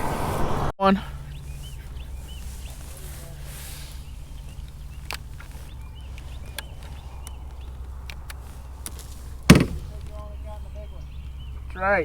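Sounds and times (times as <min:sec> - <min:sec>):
faint bird chirps: 0:01.0 - 0:12.0
loud knock: 0:09.5 - 0:10.1.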